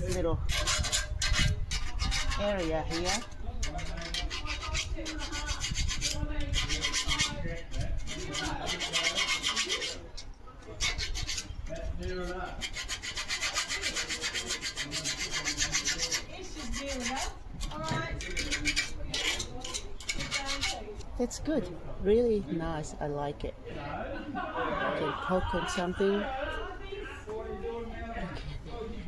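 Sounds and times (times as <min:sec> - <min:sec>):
file scraping metal: 0:00.0 - 0:21.1.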